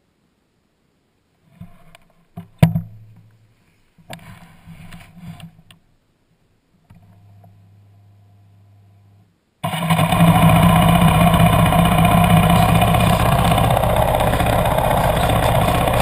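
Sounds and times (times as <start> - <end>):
engine idling: 9.6 - 16.0
loud engine bang: 9.6 - 16.0
motorcycle engine cranking and firing: 9.6 - 16.0.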